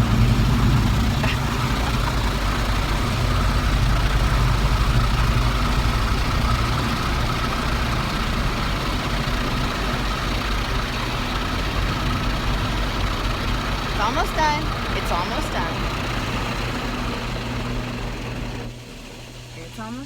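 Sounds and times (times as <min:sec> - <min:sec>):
car wash water spray hissing: 0:00.0 - 0:20.0.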